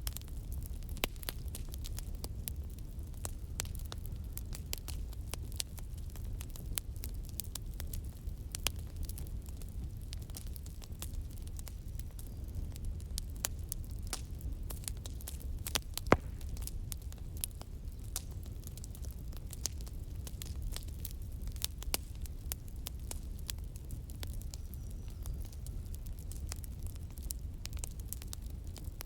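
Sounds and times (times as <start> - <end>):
wood fire crackling: 0.0 - 29.0.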